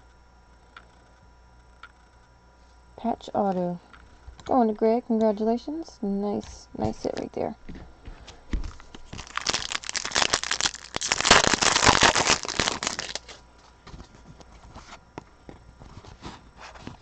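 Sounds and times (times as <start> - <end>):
wrapper crinkling and tearing: 8.7 - 13.4.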